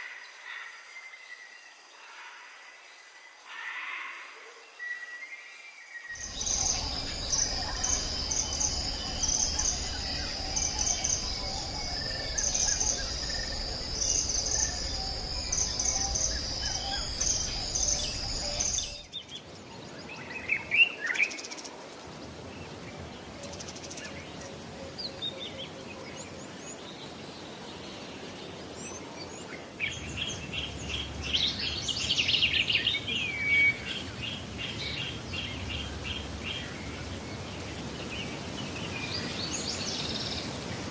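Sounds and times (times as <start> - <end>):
bird chirps and calls: 6.2 - 19.4.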